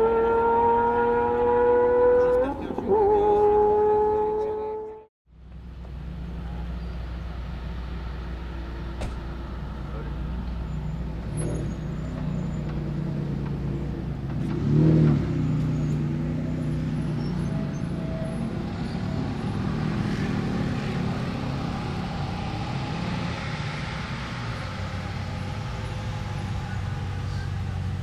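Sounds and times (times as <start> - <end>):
car engines idling: 5.3 - 28.0.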